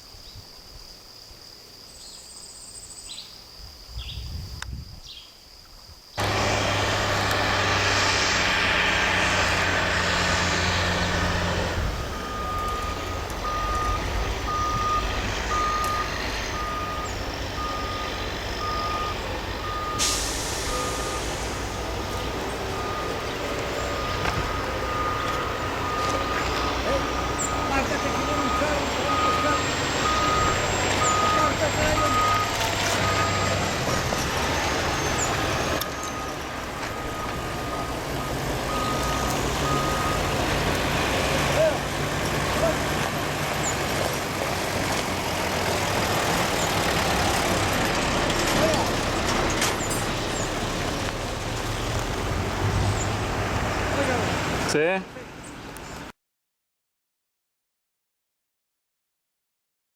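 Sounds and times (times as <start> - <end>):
low engine rumble: 6.2 - 54.8
reversing alarm beeping: 9.7 - 41.8
brief hiss: 19.9 - 21.6.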